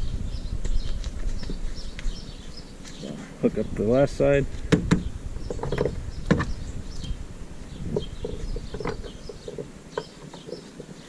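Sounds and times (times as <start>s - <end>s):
low rumble: 0.0s - 1.0s.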